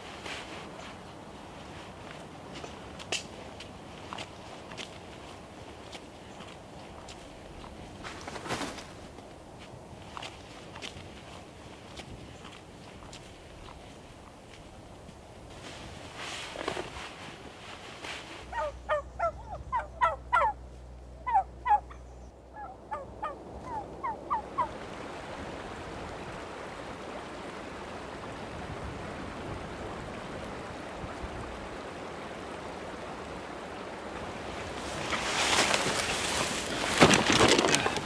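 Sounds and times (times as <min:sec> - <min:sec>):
large bird calling: 0:18.5 - 0:20.6, 0:21.2 - 0:24.7.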